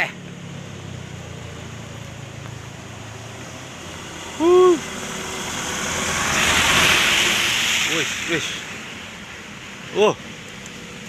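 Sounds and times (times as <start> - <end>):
vehicle engine running: 0.0 - 11.0
person calling out: 4.4 - 4.9.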